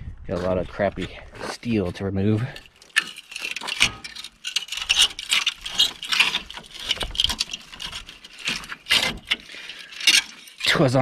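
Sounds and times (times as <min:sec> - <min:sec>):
metal and debris scraping: 0:00.3 - 0:11.0
knocks and rattles: 0:02.3 - 0:11.0.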